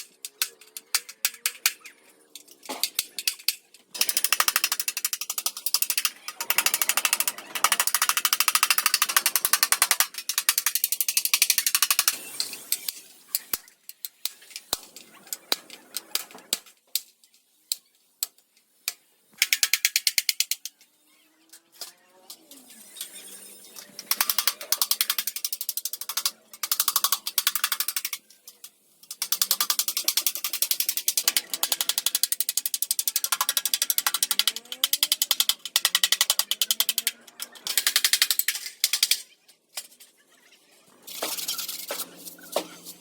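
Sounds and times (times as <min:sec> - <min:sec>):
ratcheting hand tool clicks: 0:00.0 - 0:14.8, 0:23.8 - 0:39.3.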